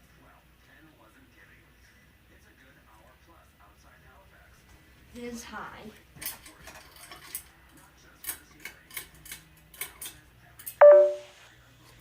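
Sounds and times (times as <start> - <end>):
ceiling fan clicking: 6.2 - 10.8
two-note tone stepping down: 10.8 - 11.3.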